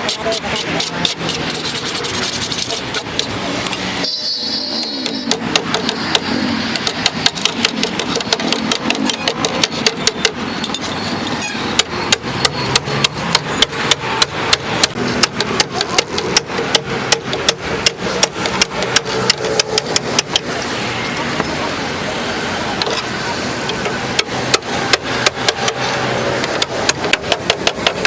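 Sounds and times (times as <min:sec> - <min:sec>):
hammer striking sheet metal: 0:00.0 - 0:10.9, 0:11.5 - 0:20.6.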